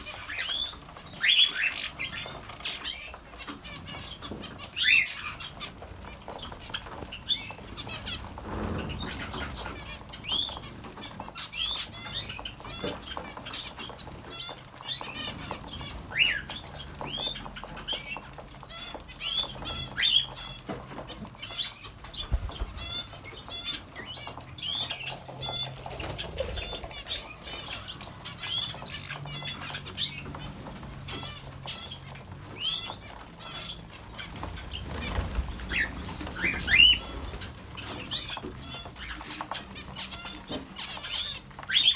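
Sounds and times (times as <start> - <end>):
small birds chirping: 0.0 - 41.9
wings flapping: 0.0 - 41.9.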